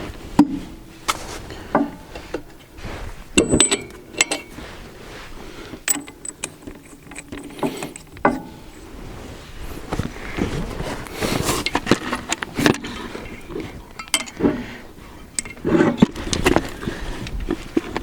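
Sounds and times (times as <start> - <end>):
hand tools clinking on metal: 3.4 - 4.6, 13.4 - 14.5.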